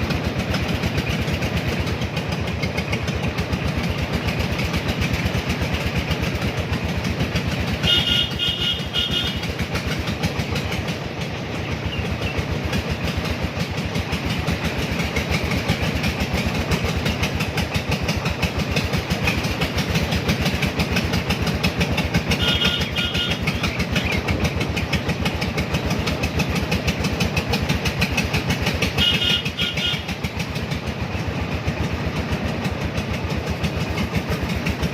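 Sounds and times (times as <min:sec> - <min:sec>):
engine chugging: 0:00.0 - 0:34.9
rapid horn beeps: 0:07.8 - 0:09.4, 0:22.4 - 0:23.5.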